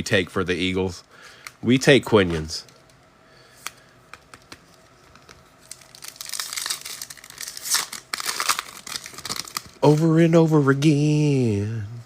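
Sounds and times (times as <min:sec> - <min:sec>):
foil wrapper crinkling: 0:04.3 - 0:10.2.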